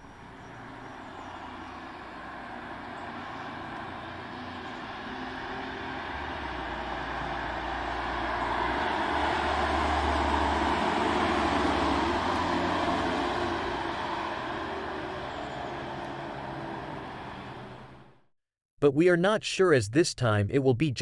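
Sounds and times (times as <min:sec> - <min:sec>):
car driving past at speed: 0:00.6 - 0:18.1.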